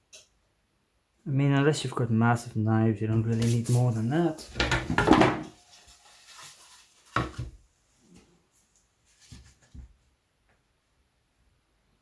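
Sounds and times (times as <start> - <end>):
tools knocking on workbench: 4.5 - 5.5.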